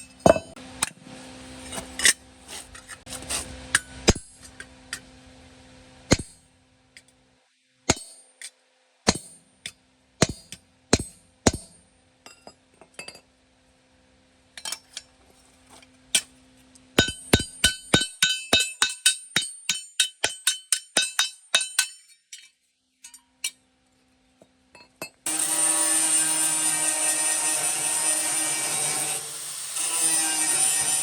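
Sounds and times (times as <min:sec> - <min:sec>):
hammer striking metal: 0:00.0 - 0:00.6, 0:06.1 - 0:06.4, 0:07.9 - 0:08.3, 0:09.1 - 0:12.4, 0:17.0 - 0:22.0.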